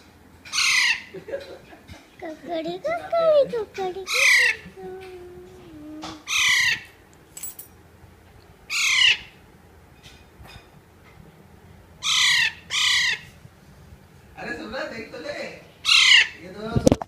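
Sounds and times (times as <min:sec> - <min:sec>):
parrot squawking: 0:00.5 - 0:01.2, 0:02.7 - 0:05.2, 0:06.2 - 0:07.0, 0:08.7 - 0:09.4, 0:12.0 - 0:13.4, 0:15.8 - 0:16.4.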